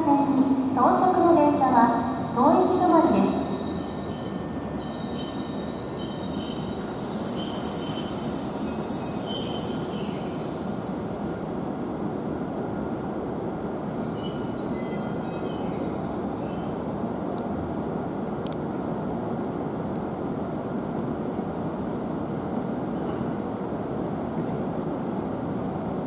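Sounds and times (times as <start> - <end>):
brake and wheel squeals: 3.4 - 10.6
train hiss: 6.5 - 12.0.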